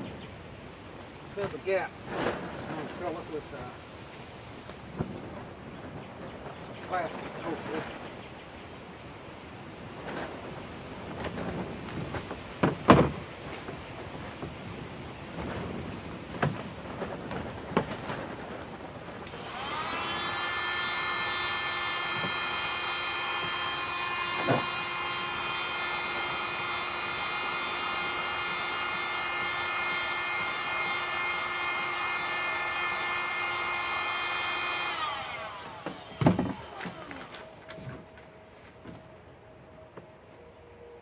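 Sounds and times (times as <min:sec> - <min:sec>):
heat gun fan whine: 0:10.0 - 0:40.1.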